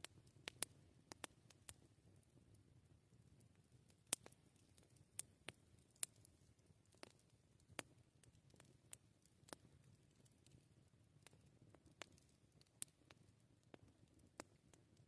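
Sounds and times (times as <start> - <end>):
campfire wood crackling: 0.0 - 15.0.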